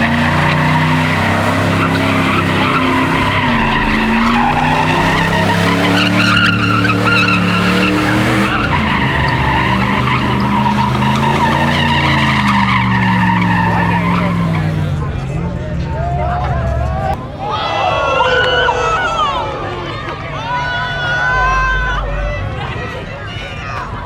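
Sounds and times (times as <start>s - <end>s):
tyres screeching: 0.0s - 15.0s
high-revving car engine: 0.0s - 15.7s.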